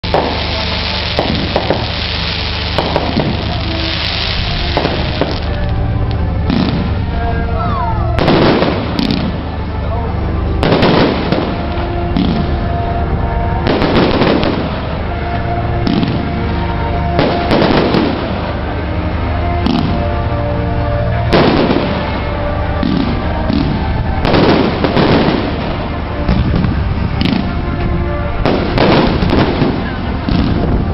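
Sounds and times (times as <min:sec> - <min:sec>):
fireworks bursts with crackling: 0:00.0 - 0:30.9
small firework pops: 0:00.1 - 0:02.0, 0:08.2 - 0:09.3, 0:27.2 - 0:27.5.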